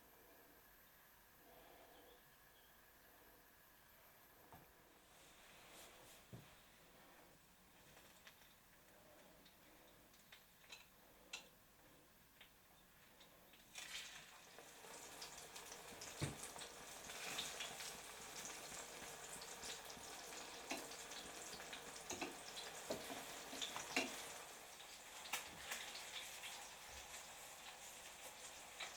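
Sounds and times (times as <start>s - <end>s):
oil crackles and pops: 7.8s - 11.5s, 12.4s - 28.9s
food sizzling in hot oil: 13.7s - 28.9s.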